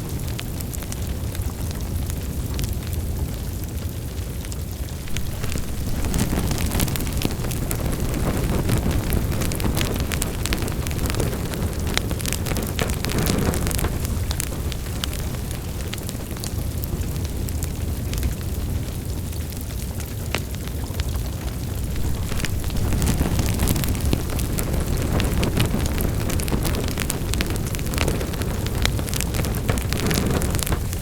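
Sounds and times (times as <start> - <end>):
fire crackling in fireplace: 0.0 - 31.0.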